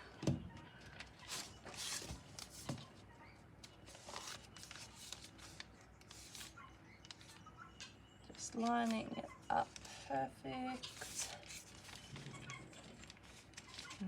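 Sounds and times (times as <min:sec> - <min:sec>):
paper rustling and scraping: 0:00.9 - 0:02.8, 0:03.9 - 0:06.5, 0:10.7 - 0:14.0.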